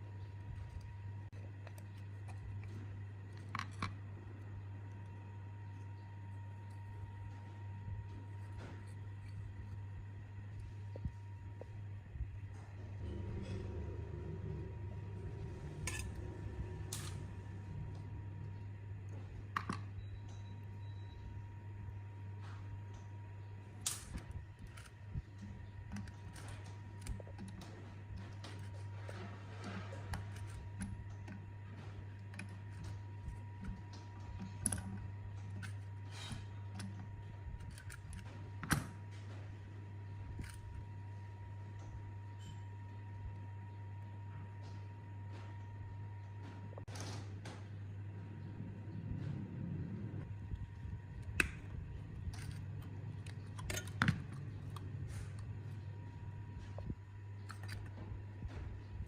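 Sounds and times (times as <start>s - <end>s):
steady low hum: 0.0s - 59.0s
clicks and knocks of parts handled: 0.4s - 4.2s, 19.1s - 20.4s, 23.8s - 39.5s, 50.5s - 58.6s.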